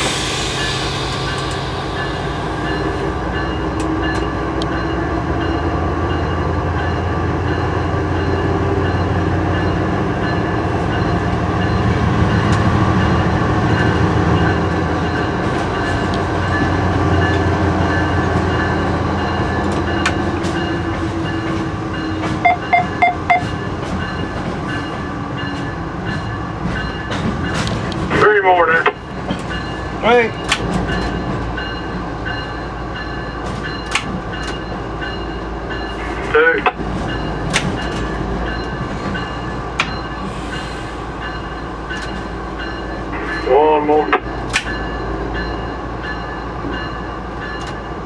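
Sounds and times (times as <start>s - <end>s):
air hissing: 0.0s - 3.4s, 40.2s - 41.2s
diesel locomotive engine drone: 0.0s - 48.0s
short beeps: 22.4s - 23.5s.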